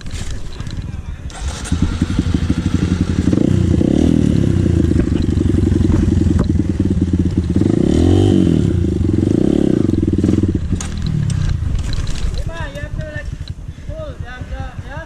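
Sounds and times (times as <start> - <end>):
dirt bike engine revving: 1.2 - 14.9.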